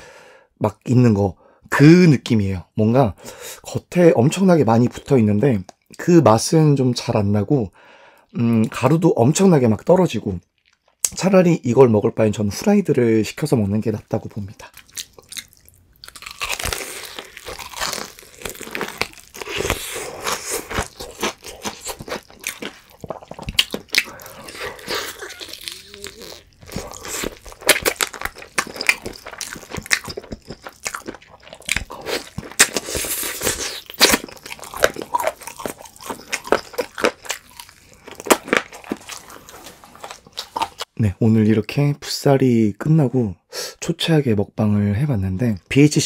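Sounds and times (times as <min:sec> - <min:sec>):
crunching and chewing fried chicken: 0:14.6 - 0:40.9.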